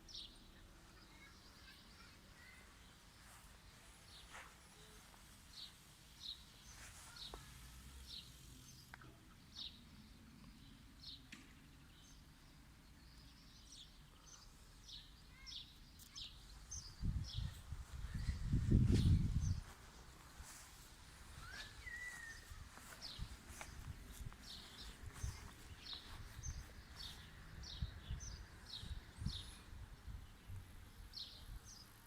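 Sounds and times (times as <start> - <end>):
faint outdoor background: 0.0 - 32.0
small bird chirping: 13.0 - 32.0.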